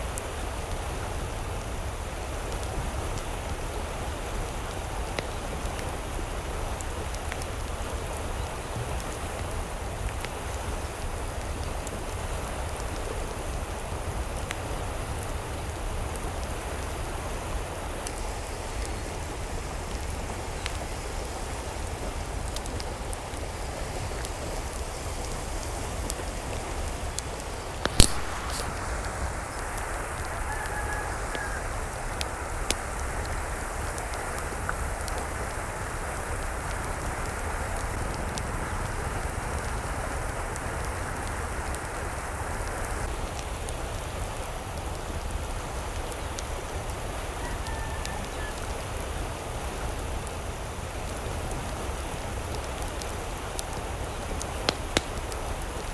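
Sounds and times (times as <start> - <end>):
hiss of water: 0.0 - 38.1
sharp click: 27.9 - 28.7.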